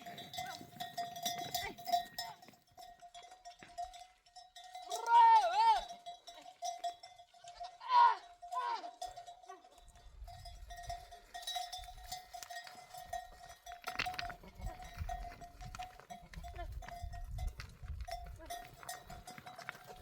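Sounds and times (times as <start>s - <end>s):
livestock bells clinking: 0.0s - 20.0s
animal bleating: 14.2s - 15.2s.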